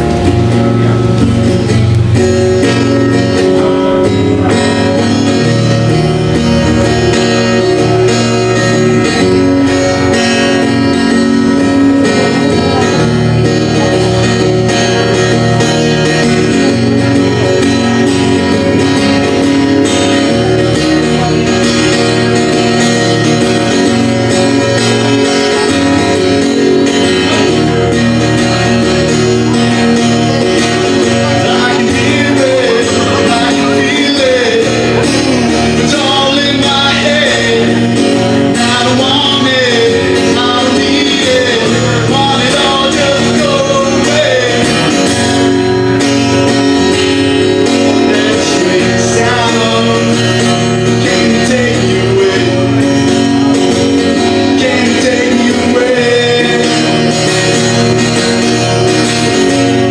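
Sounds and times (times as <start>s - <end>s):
guitar playing: 0.0s - 59.9s
man singing: 2.1s - 59.9s.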